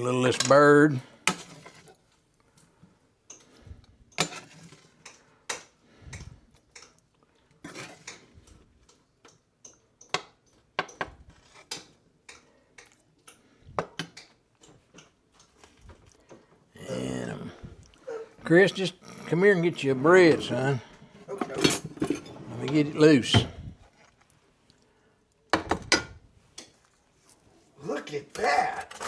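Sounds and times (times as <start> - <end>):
utensils clinking on pan and plates: 18.6 - 23.5.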